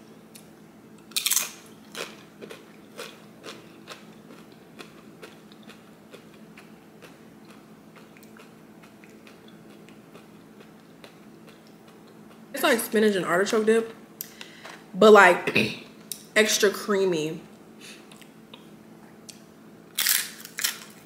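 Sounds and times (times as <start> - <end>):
chewing clicks: 1.2 - 12.4.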